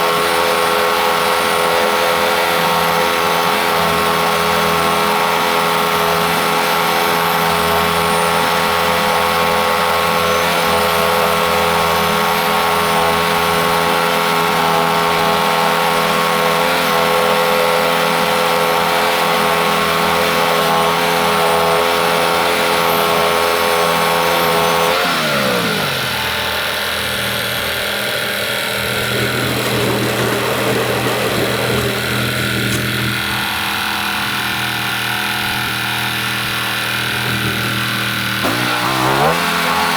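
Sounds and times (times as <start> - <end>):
sawmill gas engine running: 0.0 - 39.9.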